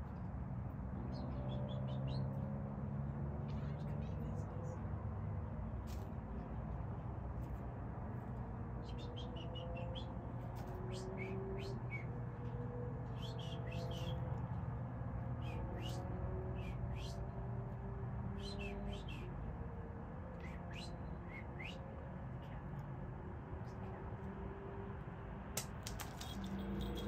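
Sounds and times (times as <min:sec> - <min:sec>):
small songbird chirping: 0:01.1 - 0:02.4, 0:08.8 - 0:10.2, 0:13.1 - 0:14.3.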